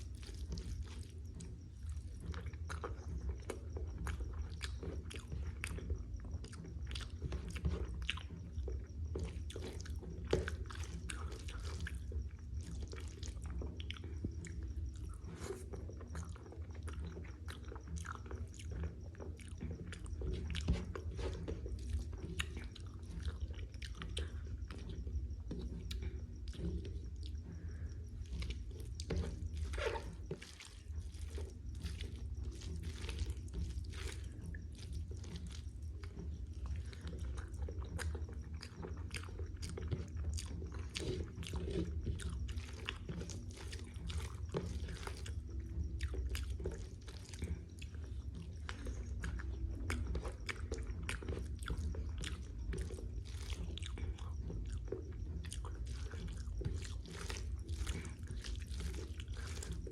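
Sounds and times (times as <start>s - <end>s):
chewing and biting: 0.0s - 59.9s
steady low hum: 0.0s - 59.9s.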